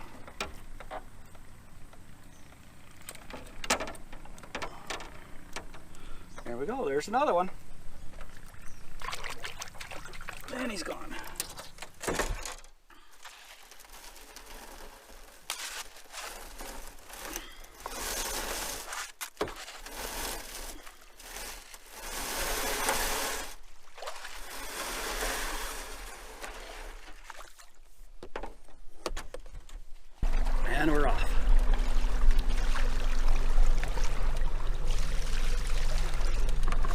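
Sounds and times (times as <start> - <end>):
water splashing and trickling: 6.9 - 11.8, 13.0 - 28.0, 30.2 - 36.9.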